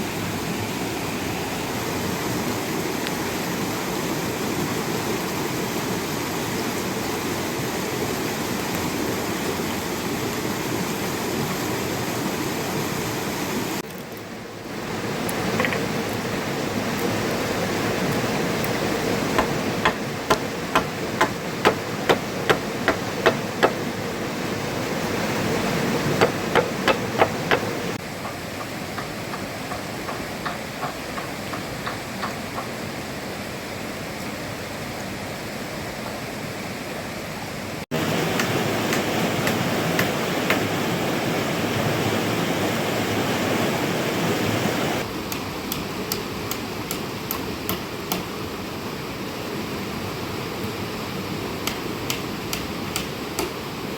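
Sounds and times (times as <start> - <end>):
heavy rain: 0.0 - 32.0, 37.8 - 45.6
running water: 0.0 - 53.9
hand tool striking: 19.4 - 23.8, 26.1 - 32.4, 51.6 - 53.6.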